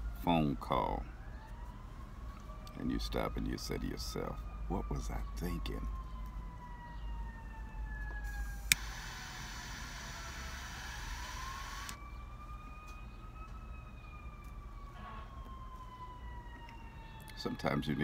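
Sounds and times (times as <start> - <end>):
distant siren wailing: 0.0 - 18.0
steady low hum: 8.3 - 12.0
hiss: 8.4 - 12.0.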